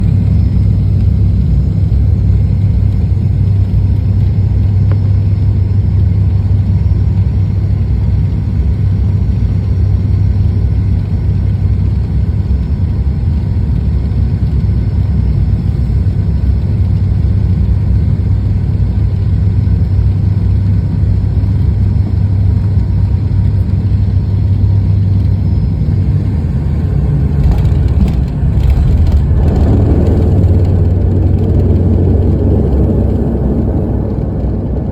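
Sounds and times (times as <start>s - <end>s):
airliner cabin engine rumble: 0.0s - 34.9s
brief clatter: 27.4s - 31.8s.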